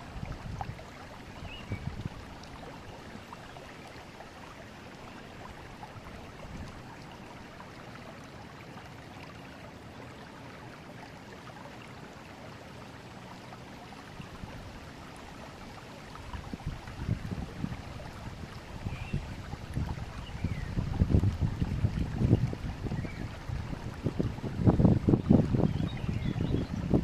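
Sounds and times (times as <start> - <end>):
river water flowing over stones: 0.0 - 27.0.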